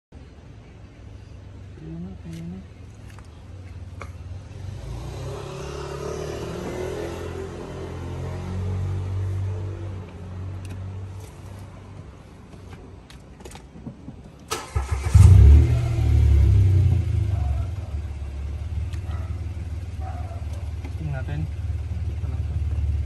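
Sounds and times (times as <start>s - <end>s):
car engine starting and idling: 14.4s - 23.0s.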